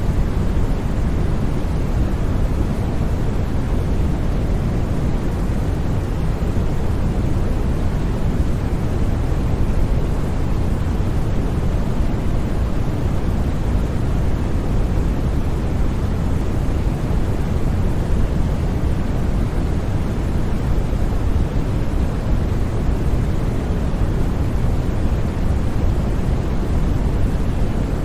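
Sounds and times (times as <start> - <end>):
deep rumbling white noise: 0.0 - 28.0.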